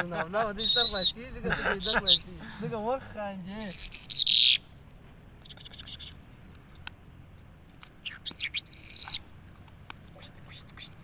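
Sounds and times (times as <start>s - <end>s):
bird calling: 0.0s - 4.7s, 8.0s - 9.4s.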